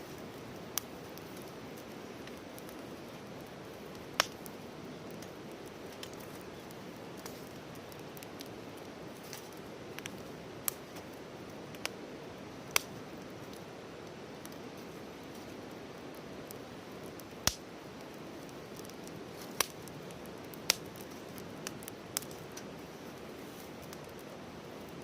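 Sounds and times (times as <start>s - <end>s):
campfire hissing and popping: 0.0s - 25.0s.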